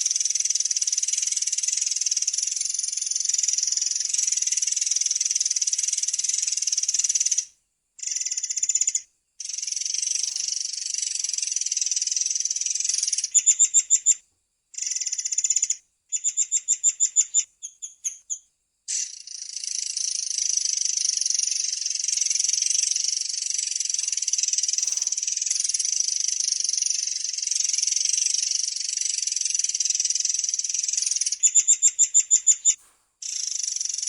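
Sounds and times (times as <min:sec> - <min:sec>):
bird singing high trills: 0:23.4 - 0:34.0.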